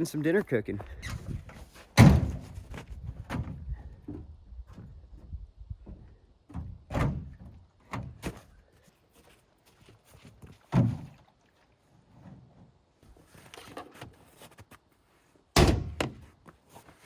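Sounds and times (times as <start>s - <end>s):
gear thunks and knocks: 1.0s - 4.9s.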